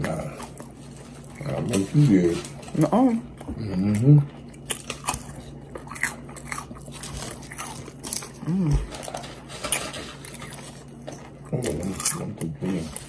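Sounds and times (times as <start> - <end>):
crunching and chewing fries: 0.0 - 13.0
person humming: 8.4 - 9.0.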